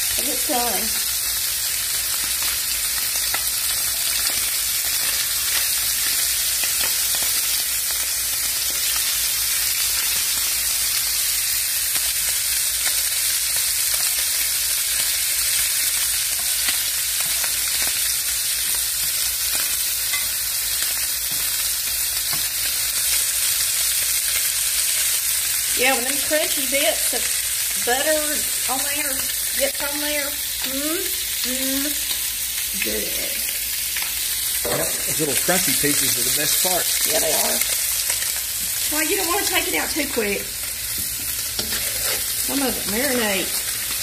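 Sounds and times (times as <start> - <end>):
fish sizzling in butter: 0.0 - 44.0
okra frying in a wok: 0.0 - 44.0
spatula scraping a pan: 41.0 - 43.0.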